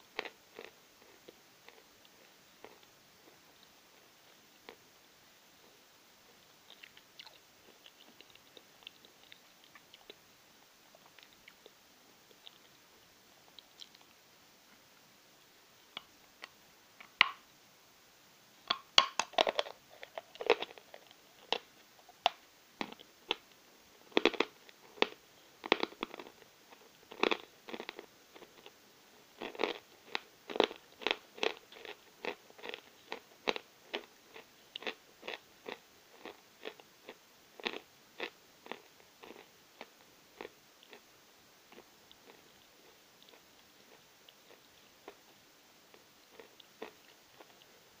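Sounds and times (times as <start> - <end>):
chalk crunching being chewed: 0.2 - 3.7, 24.1 - 28.8, 29.4 - 41.0, 45.9 - 47.7.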